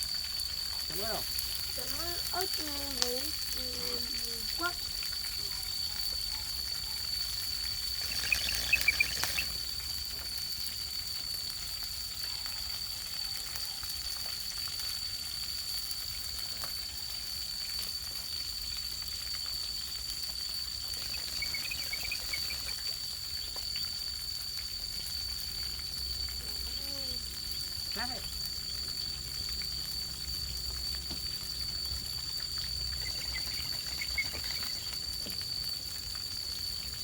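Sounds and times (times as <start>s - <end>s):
food sizzling in a pan: 0.0s - 37.0s
short chirping bursts: 7.8s - 9.6s, 21.0s - 22.9s, 33.0s - 34.9s.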